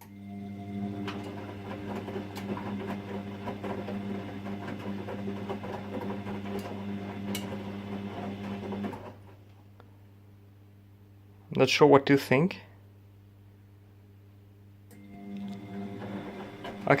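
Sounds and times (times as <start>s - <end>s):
washing machine motor hum: 0.0s - 9.4s, 14.9s - 17.0s.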